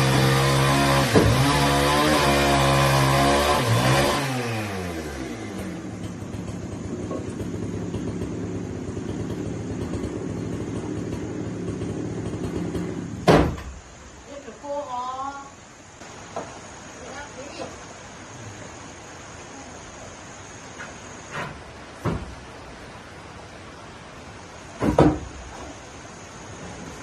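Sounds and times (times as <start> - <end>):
small engine running: 0.0 - 13.2
sharp knock: 13.2 - 13.7, 24.8 - 25.2.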